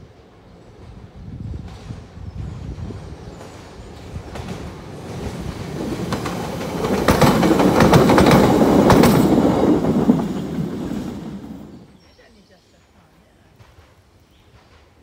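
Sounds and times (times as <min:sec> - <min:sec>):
electric train passing: 0:00.0 - 0:12.0
wheels clickety-clack over rail joints: 0:00.2 - 0:11.9.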